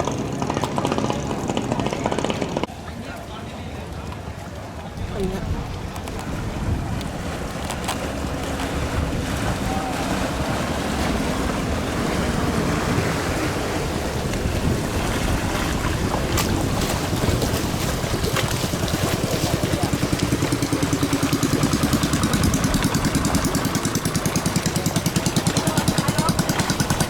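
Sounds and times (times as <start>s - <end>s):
boat engines racing: 0.0s - 27.0s
wind on microphone: 5.0s - 24.8s.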